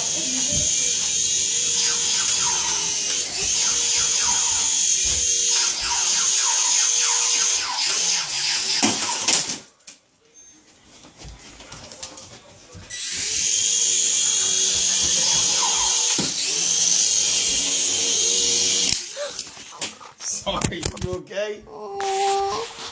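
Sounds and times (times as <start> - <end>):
toy helicopter rotors whirring: 0.0 - 9.5, 12.9 - 20.0.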